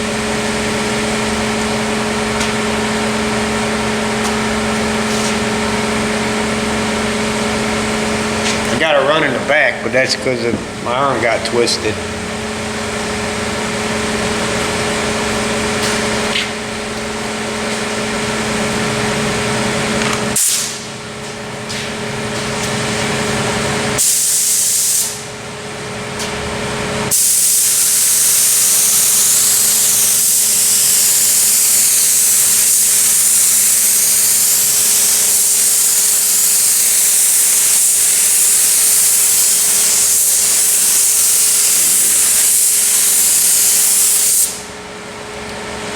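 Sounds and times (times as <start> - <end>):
machine hum: 0.0 - 24.0
paint spray gun hissing: 20.3 - 20.9, 24.0 - 25.2, 27.1 - 44.7.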